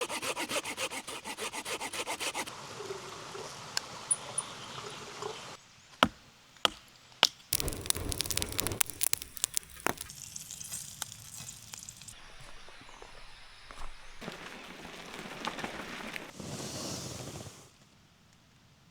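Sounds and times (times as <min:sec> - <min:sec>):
hand saw cutting wood: 0:00.0 - 0:02.5
wood snapping: 0:06.6 - 0:12.1
crackling rustle: 0:07.5 - 0:12.2, 0:13.7 - 0:18.0.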